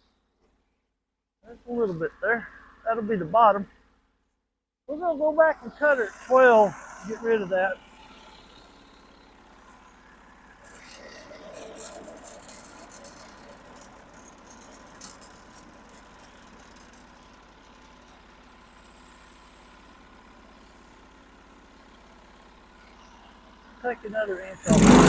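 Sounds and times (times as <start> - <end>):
sawmill engine idling: 4.9 - 25.0.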